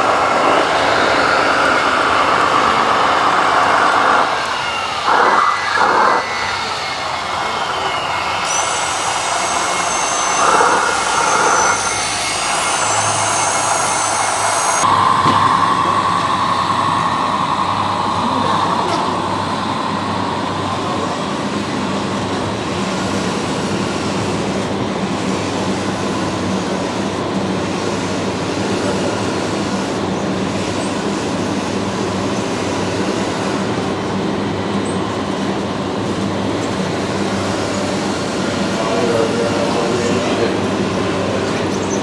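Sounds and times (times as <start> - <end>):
toy truck electric motors running: 0.0 - 14.9
high motor whine: 0.0 - 42.0.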